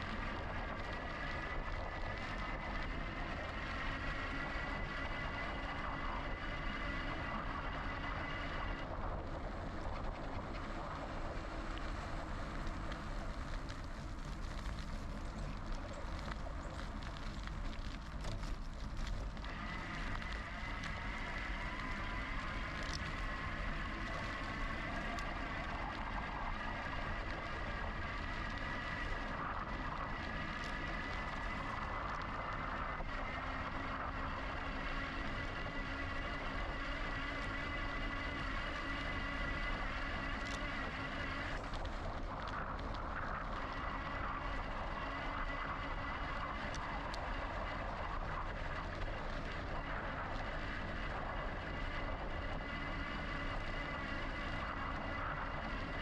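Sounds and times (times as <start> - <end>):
electric motor high whine: 19.5 - 56.0.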